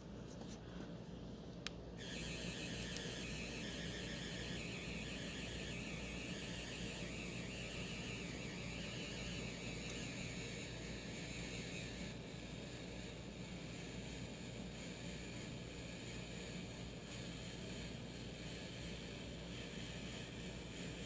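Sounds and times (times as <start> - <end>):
small motor whirring: 2.0 - 21.0
click: 2.9 - 3.1.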